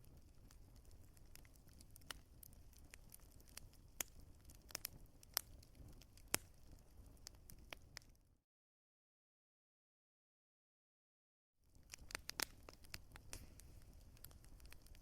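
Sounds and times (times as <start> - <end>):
wood fire crackling: 0.0 - 8.2, 11.7 - 15.0
low rumble of burning: 0.0 - 8.4, 11.6 - 15.0.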